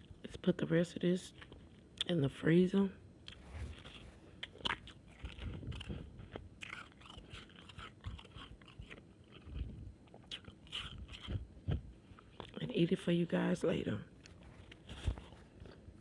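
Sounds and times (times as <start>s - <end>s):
chewing and crunching ice: 1.2s - 2.1s, 3.3s - 12.7s.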